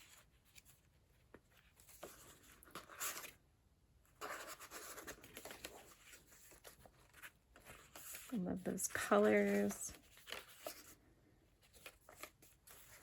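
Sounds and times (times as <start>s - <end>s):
paper rustling: 0.0s - 3.4s, 4.2s - 11.0s, 11.6s - 13.0s.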